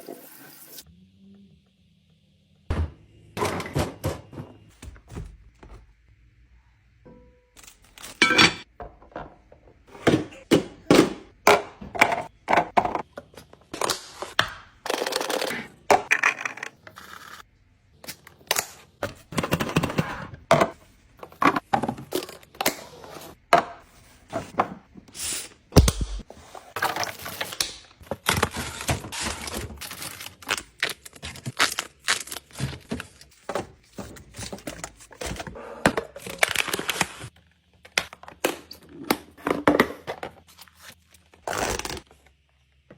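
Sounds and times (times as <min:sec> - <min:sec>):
food packaging rustling: 0:26.8 - 0:35.5.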